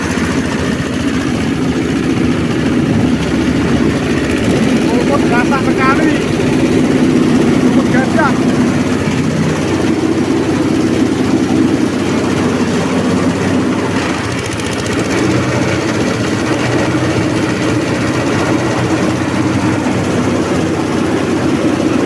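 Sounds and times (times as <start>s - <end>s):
shredder machine droning: 0.0s - 22.0s.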